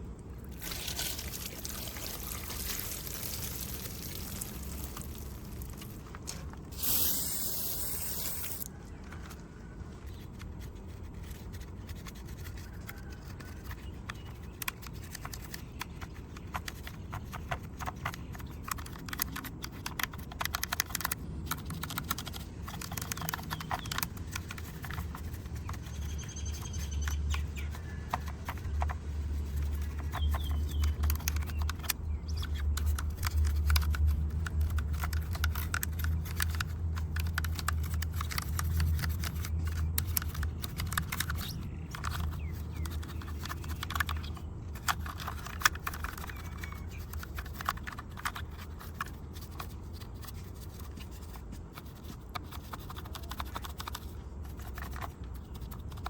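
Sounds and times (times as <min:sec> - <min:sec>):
spray hiss: 0:06.7 - 0:08.6
brush scrubbing a model car: 0:06.7 - 0:08.7, 0:10.1 - 0:56.0.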